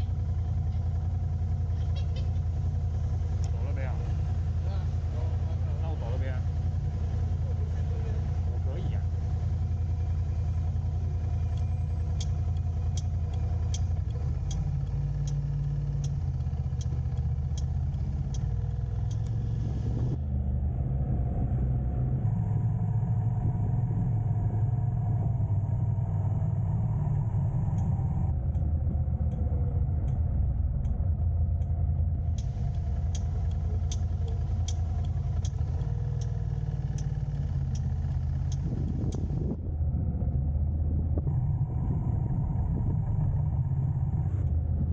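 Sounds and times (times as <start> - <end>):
sharp regular ticking: 0.0 - 20.2, 27.3 - 39.6
car engine and road rumble: 0.0 - 44.9.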